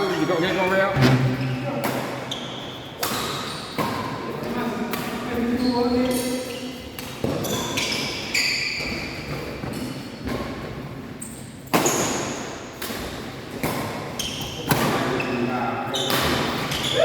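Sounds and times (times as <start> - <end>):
shoe squeaks: 0.9 - 3.8, 5.5 - 9.9, 14.2 - 17.0.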